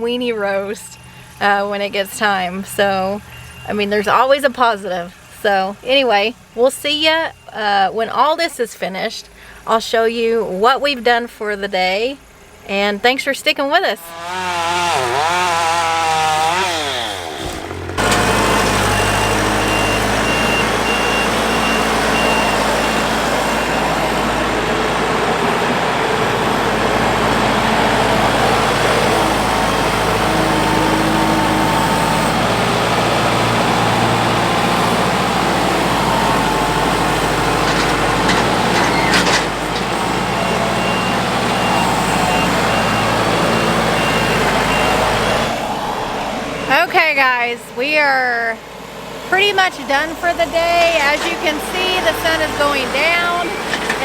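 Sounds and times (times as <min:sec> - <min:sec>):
reversing alarm beeping: 0:00.0 - 0:11.2, 0:17.4 - 0:48.1, 0:49.4 - 0:54.0
heavy vehicle engine running: 0:00.0 - 0:54.0.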